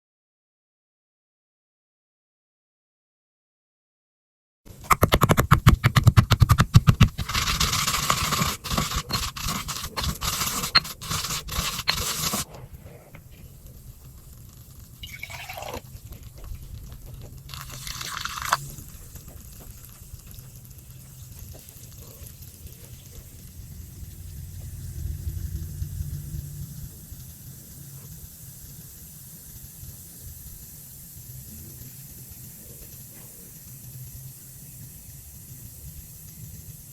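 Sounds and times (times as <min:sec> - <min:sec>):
cornstarch crunching and crackling: 0:04.7 - 0:12.6, 0:13.3 - 0:23.3
handling noise: 0:04.7 - 0:13.6
short falling squeak: 0:15.0 - 0:15.5.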